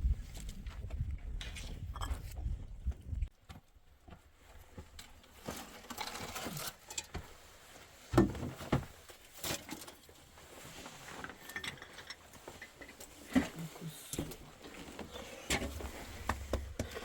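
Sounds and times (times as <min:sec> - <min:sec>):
rustling and light knocks: 0:03.4 - 0:17.0.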